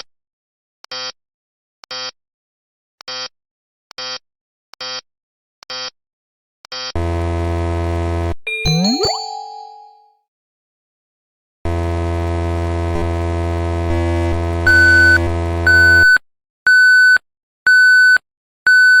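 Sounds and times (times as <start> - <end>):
high electronic beep: 8.5 - 10.0.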